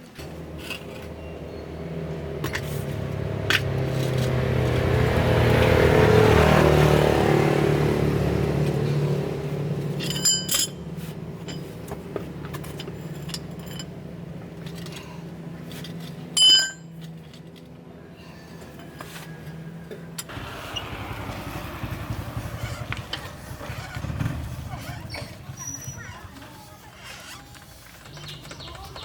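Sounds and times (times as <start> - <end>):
vehicle engine running: 0.0 - 29.0
short metallic clinks: 10.0 - 10.9, 12.8 - 13.9, 16.4 - 17.0.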